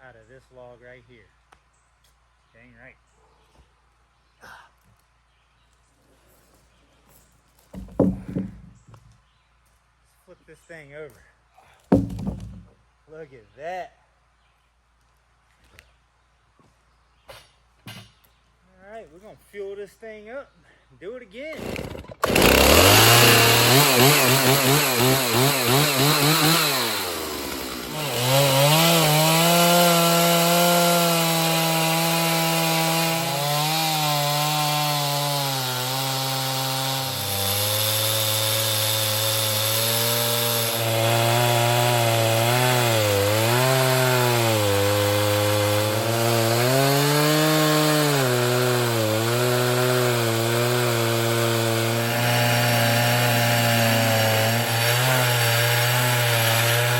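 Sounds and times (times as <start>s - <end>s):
chainsaw cutting log: 7.7s - 9.0s, 11.9s - 12.7s, 21.4s - 56.9s.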